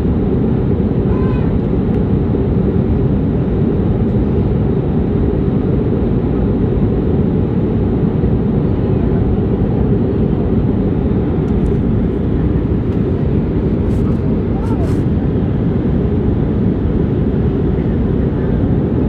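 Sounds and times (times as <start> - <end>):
airliner engines roaring: 0.0 - 19.0
rushing air: 10.5 - 17.4.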